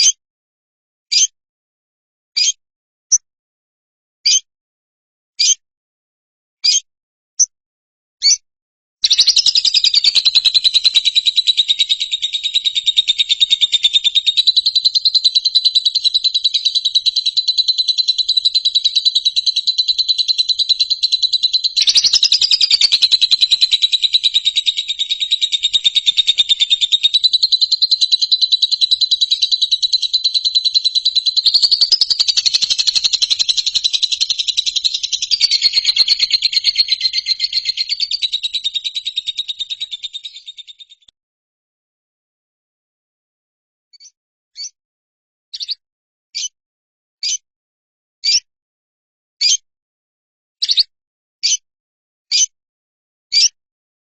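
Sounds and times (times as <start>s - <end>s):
bird chirps: 1.1s - 1.3s, 2.4s - 3.3s, 4.2s - 4.5s, 5.4s - 5.6s, 6.6s - 6.8s, 8.2s - 8.4s, 9.0s - 41.1s, 44.0s - 44.8s, 45.5s - 45.8s, 46.4s - 46.6s, 48.2s - 48.4s, 50.6s - 51.6s, 53.3s - 53.6s
fast high bird trill: 9.0s - 41.0s.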